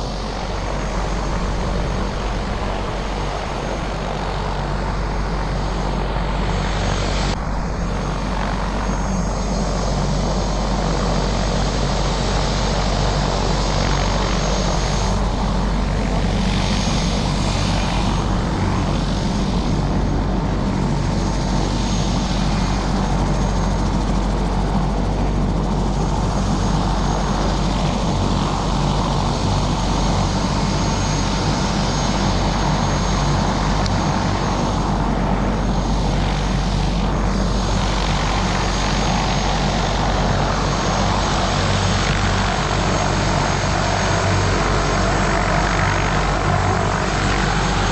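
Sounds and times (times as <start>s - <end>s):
helicopter engine and rotor drone: 0.0s - 47.9s.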